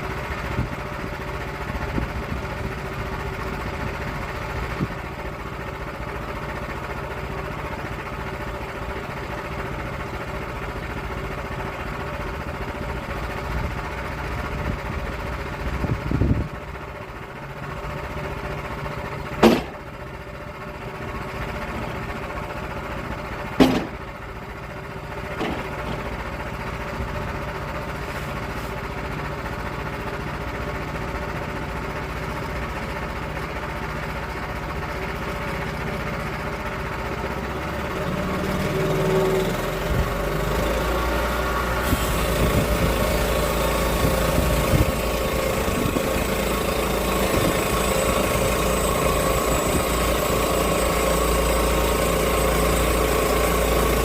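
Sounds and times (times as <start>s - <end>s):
sawmill engine running: 0.0s - 54.0s
sharp knocks: 19.4s - 19.8s, 23.6s - 24.0s.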